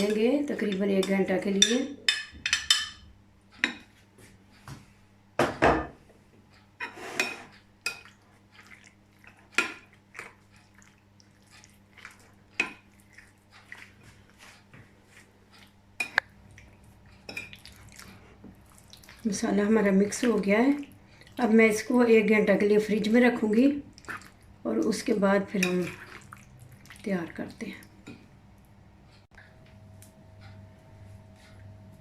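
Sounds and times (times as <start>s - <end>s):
utensil clinking against a bowl: 0.0s - 3.9s.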